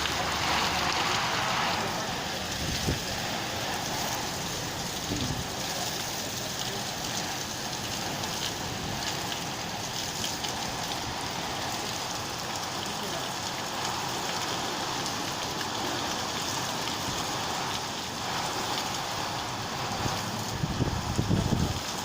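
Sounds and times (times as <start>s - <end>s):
heavy rain hissing: 0.0s - 22.0s.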